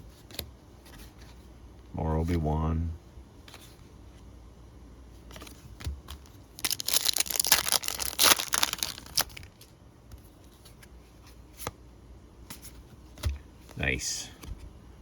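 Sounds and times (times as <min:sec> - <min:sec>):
cards being handled: 0:05.3 - 0:11.8
foil wrapper tearing and crinkling: 0:06.6 - 0:09.6.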